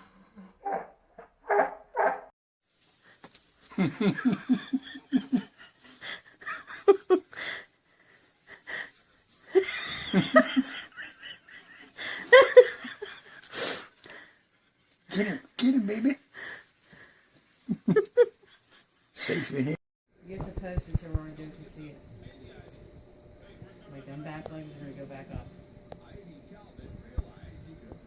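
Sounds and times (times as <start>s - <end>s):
person laughing breathlessly: 3.7s - 14.5s, 16.4s - 19.8s.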